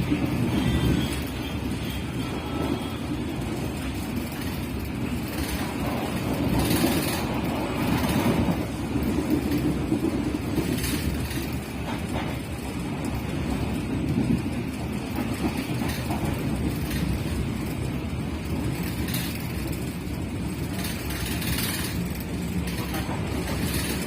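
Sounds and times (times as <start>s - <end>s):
train rushing: 0.0s - 24.0s
train wheels rumbling on rails: 0.0s - 24.0s.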